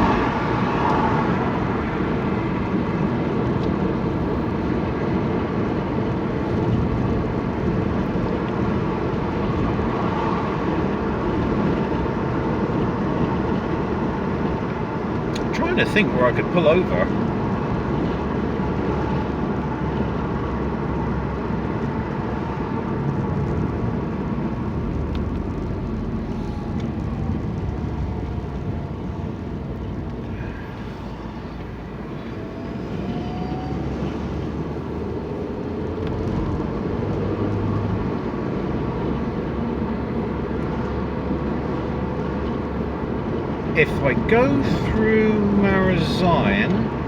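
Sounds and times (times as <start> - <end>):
car road and engine noise: 0.0 - 47.0.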